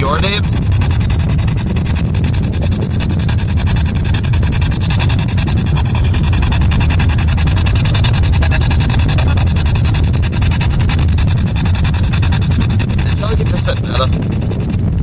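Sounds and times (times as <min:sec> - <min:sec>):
radio static with fast clicks: 0:09.2 - 0:15.0.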